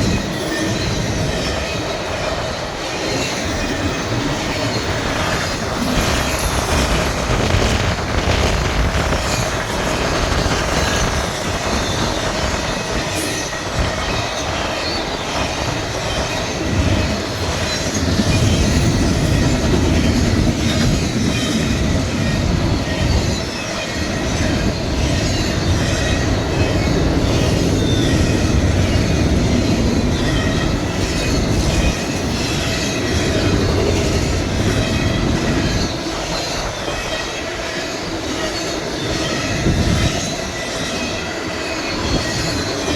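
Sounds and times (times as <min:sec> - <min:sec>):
freight train cars rumbling: 0:00.0 - 0:42.9
train wheel squeal: 0:00.0 - 0:42.9.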